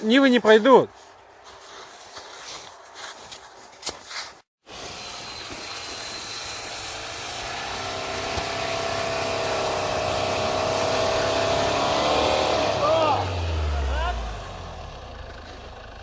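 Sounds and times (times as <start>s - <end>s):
pitched engine whine: 4.8s - 16.0s
car engine straining: 6.2s - 16.0s.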